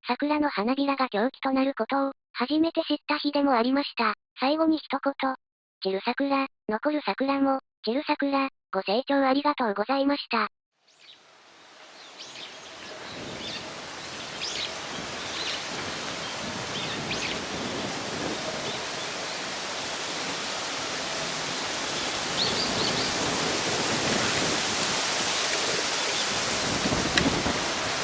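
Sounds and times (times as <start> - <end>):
small birds chirping: 10.9 - 28.0
gusty wind rushing through trees: 11.0 - 28.0.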